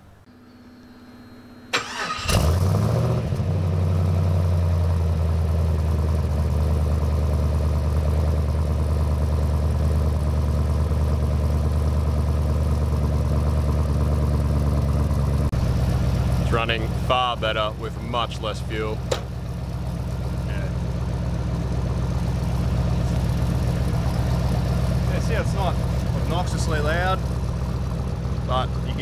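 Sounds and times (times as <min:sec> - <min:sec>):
starter motor cranking: 0:01.7 - 0:02.6
engine revving and idling: 0:01.7 - 0:29.0.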